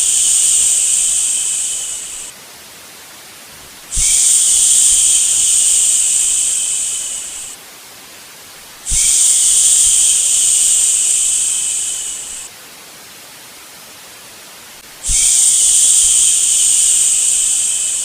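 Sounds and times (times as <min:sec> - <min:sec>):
soft white noise hiss: 0:00.0 - 0:18.0
person shushing: 0:15.0 - 0:15.7.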